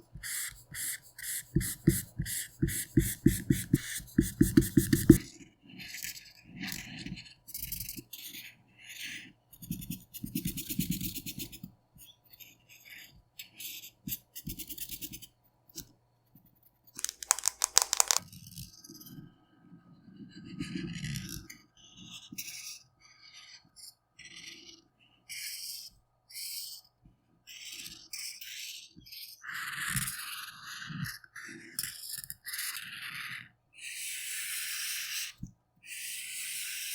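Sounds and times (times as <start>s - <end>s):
colouring strokes scratching on paper: 0.0s - 5.2s.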